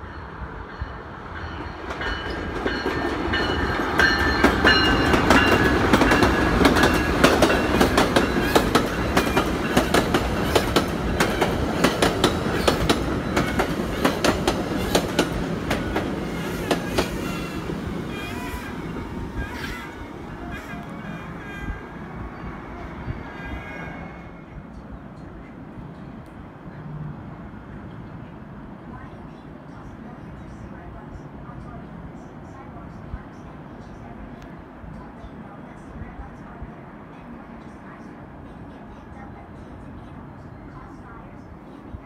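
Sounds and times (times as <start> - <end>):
passenger train passing: 0.0 - 42.0
wheels clacking over rail joints: 1.8 - 18.1.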